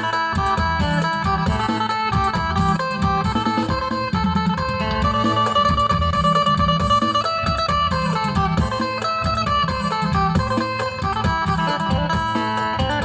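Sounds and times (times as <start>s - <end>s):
fast plucked lute melody: 0.0s - 13.0s
repeating low beat: 0.0s - 13.0s.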